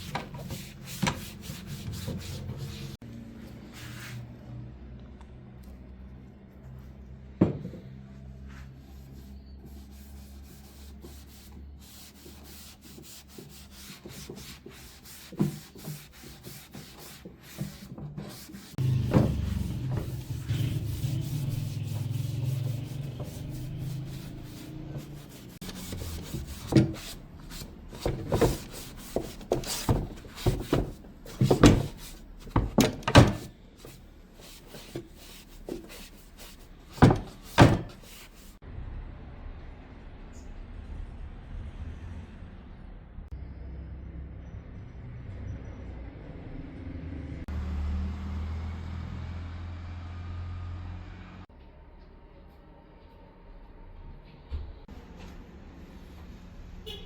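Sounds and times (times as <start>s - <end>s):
rubbing on wood: 0.0s - 3.0s, 9.2s - 38.6s.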